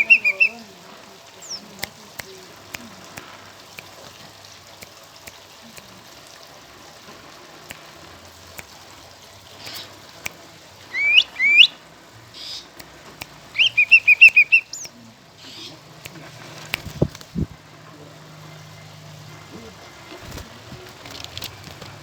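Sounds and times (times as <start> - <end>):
bird whistled calls: 0.0 - 0.6, 10.9 - 11.8, 13.6 - 15.7.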